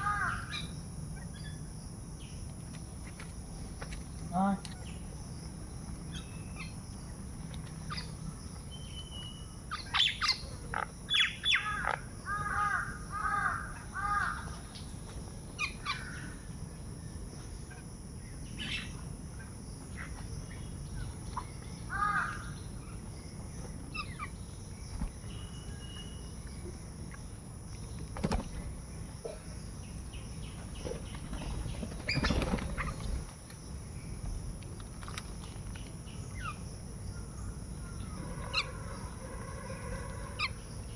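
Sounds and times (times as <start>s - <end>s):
crows cawing: 0.0s - 0.5s, 11.5s - 14.6s, 21.9s - 22.6s
small birds chirping: 0.0s - 39.2s.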